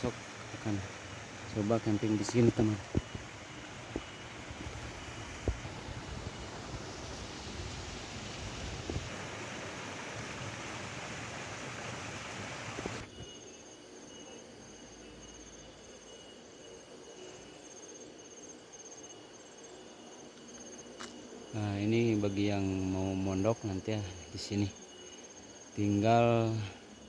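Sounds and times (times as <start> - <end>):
steady rushing noise: 0.0 - 13.1
insects chirping: 0.0 - 27.0.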